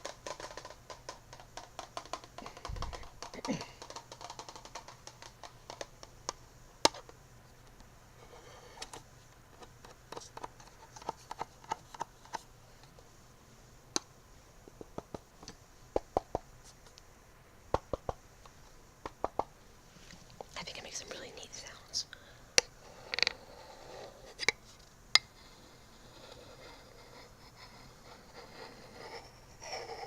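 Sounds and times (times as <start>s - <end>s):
fingernails tapping hard objects: 0.0s - 7.0s.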